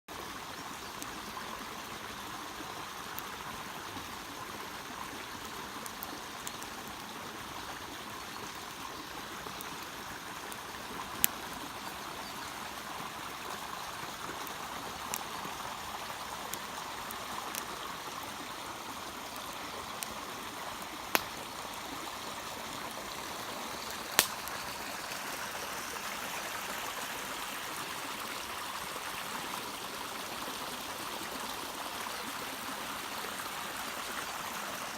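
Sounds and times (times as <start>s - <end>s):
campfire hissing: 0.3s - 34.9s
wood crackling pops: 20.8s - 21.4s, 24.1s - 24.6s.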